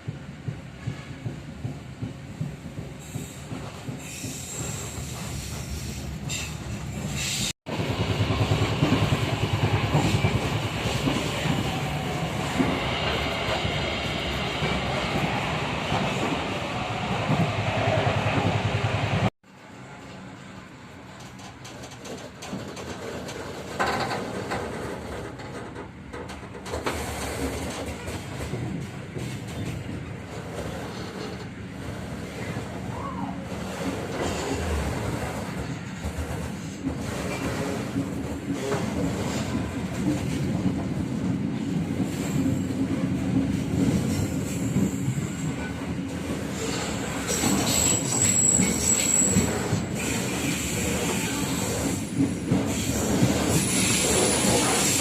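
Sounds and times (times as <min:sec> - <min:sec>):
train rumbling and rattling: 0:00.0 - 0:55.0
high wheel squeal: 0:46.7 - 0:55.0.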